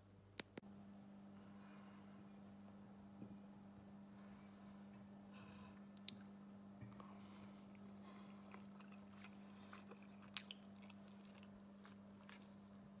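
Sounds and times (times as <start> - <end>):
steady low hum: 0.0 - 13.0
person chewing food: 5.7 - 13.0.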